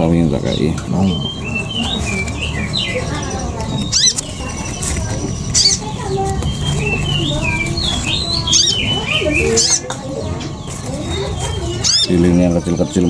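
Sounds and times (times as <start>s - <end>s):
small birds chirping and twittering: 0.0s - 13.0s
wings fluttering: 1.8s - 12.2s.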